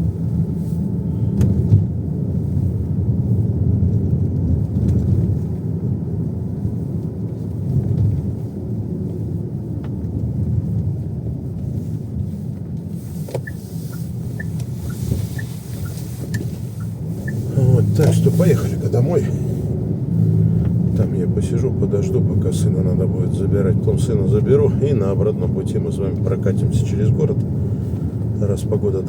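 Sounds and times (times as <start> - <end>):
car cabin rumble: 0.0 - 29.0
turn signal ticking: 9.1 - 22.2.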